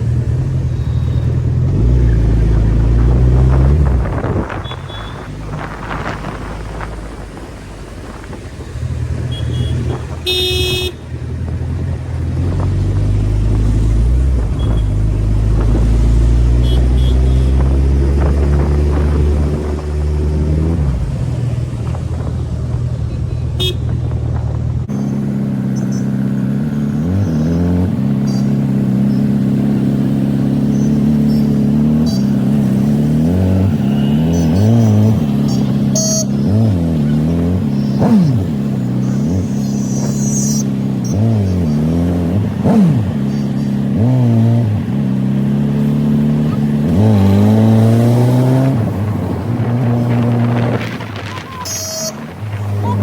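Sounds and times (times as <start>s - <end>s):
motorcycle engine revving: 0.0s - 53.0s
vehicle horn: 4.4s - 5.4s, 9.2s - 11.2s, 14.5s - 15.0s, 16.5s - 17.7s, 23.6s - 24.0s, 33.2s - 36.6s, 51.3s - 53.0s.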